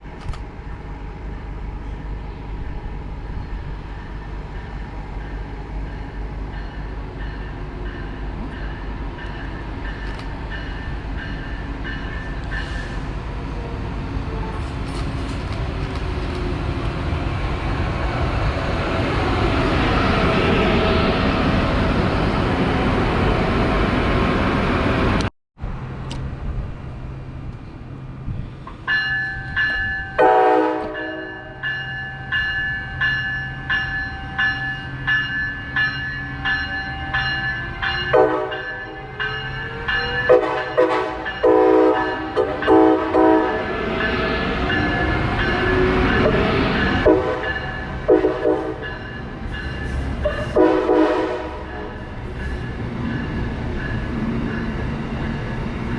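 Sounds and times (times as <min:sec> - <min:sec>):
train passing: 0:00.1 - 0:55.9
locomotive bell ringing: 0:04.0 - 0:13.0, 0:28.9 - 0:55.9
train horn blasts: 0:30.2 - 0:31.6, 0:38.1 - 0:39.2, 0:40.3 - 0:43.8, 0:47.0 - 0:48.8, 0:50.3 - 0:52.0.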